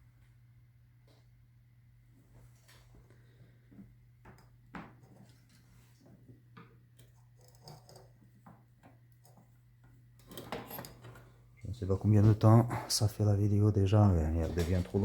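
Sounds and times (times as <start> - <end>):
tools clicking and tapping: 6.6 - 11.3.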